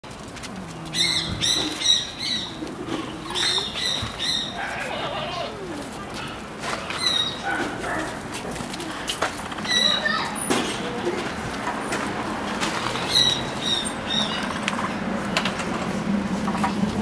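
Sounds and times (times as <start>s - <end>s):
capybara chirping: 0.8s - 5.8s.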